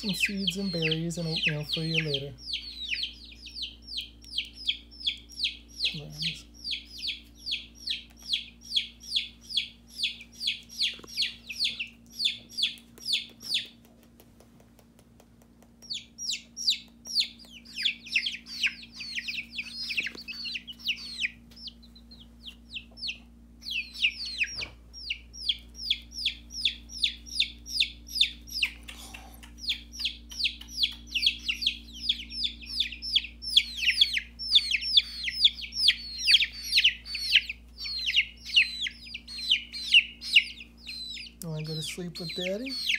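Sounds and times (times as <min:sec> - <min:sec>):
baby chicks peeping: 0:00.0 - 0:42.9.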